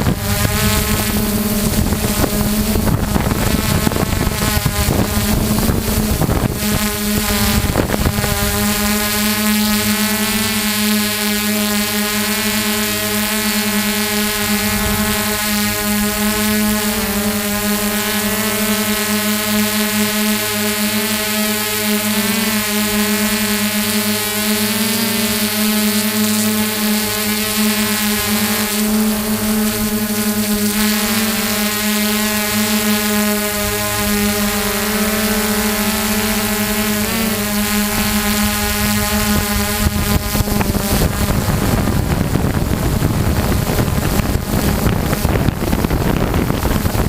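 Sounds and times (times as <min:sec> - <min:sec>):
wind buffeting microphone: 0:00.0 - 0:09.2, 0:14.3 - 0:16.3, 0:37.8 - 0:47.0
drone propellers humming: 0:00.0 - 0:47.0.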